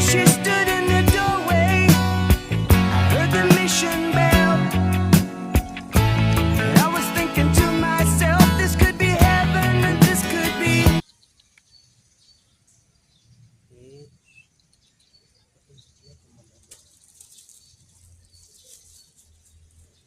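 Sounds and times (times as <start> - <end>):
music: 0.0 - 11.0
birds chirping softly: 11.0 - 20.0.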